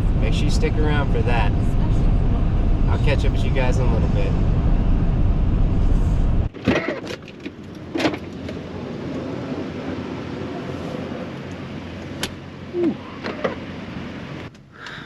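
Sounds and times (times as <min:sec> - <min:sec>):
steady low hum: 0:00.0 - 0:06.5
vehicle road and engine rumble: 0:00.0 - 0:15.0.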